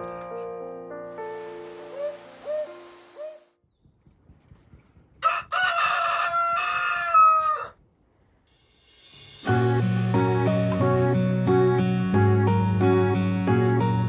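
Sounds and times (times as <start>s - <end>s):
rooster crowing: 5.2s - 7.8s
background music: 9.0s - 14.0s.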